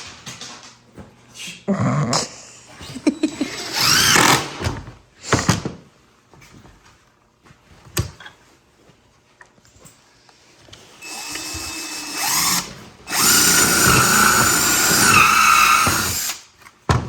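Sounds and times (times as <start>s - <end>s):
power drill whining: 3.6s - 4.5s, 11.0s - 16.4s.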